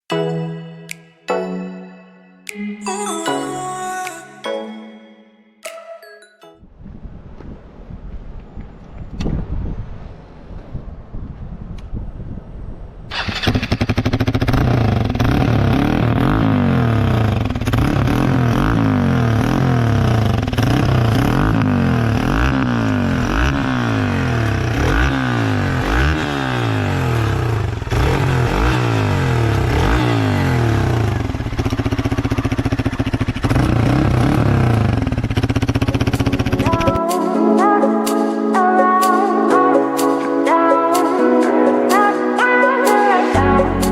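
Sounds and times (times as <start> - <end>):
motorcycle engine revving: 13.1 - 37.0.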